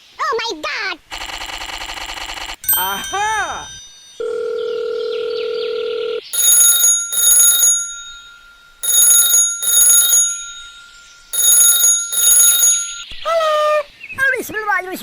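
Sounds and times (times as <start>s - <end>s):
electronic ringing: 1.1s - 13.2s.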